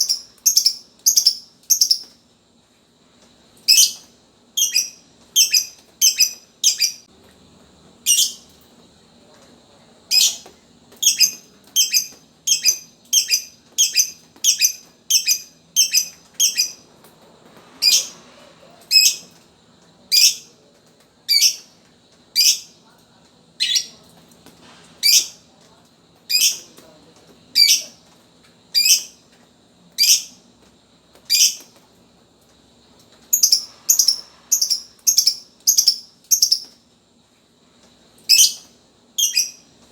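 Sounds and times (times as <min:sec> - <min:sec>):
bird chirping: 0:00.0 - 0:02.2, 0:03.7 - 0:07.0, 0:08.1 - 0:08.4, 0:11.0 - 0:16.8, 0:33.3 - 0:36.7.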